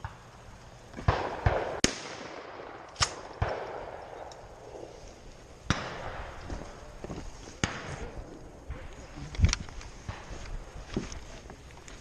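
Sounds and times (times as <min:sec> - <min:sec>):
shotgun shots with echo: 0:01.0 - 0:04.2, 0:05.7 - 0:06.4.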